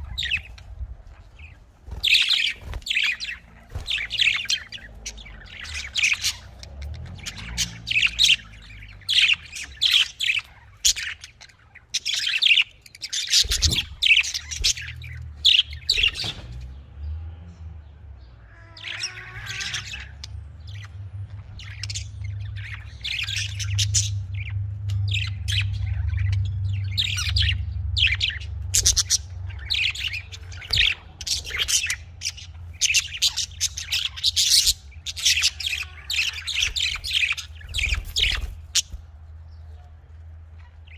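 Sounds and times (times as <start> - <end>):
budgerigars chirping and squawking: 0.0 - 16.8, 18.3 - 39.9, 40.5 - 40.9
steady low hum: 0.0 - 18.2.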